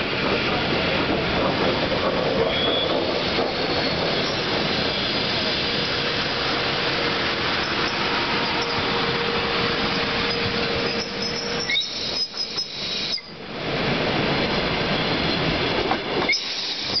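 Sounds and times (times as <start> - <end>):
train cars rumbling past: 0.0 - 17.0
high wheel squeals: 9.8 - 13.4, 16.2 - 17.0.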